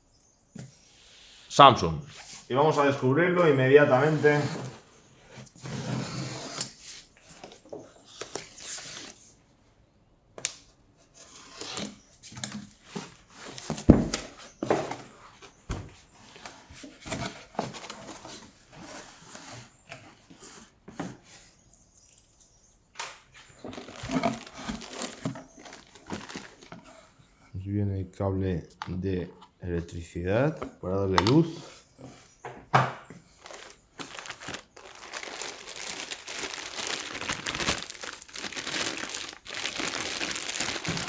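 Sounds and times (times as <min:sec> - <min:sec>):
cardboard rustling and scraping: 0:03.6 - 0:09.2, 0:11.1 - 0:21.5, 0:23.3 - 0:27.2, 0:33.3 - 0:41.0.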